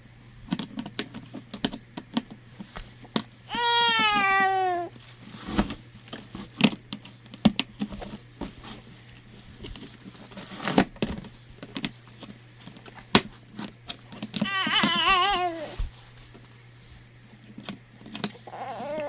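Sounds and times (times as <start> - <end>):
plastic crinkling: 3.9 - 18.3.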